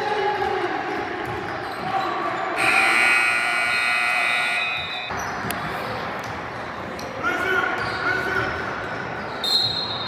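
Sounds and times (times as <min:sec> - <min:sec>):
scoreboard buzzer tone: 0:02.6 - 0:05.1.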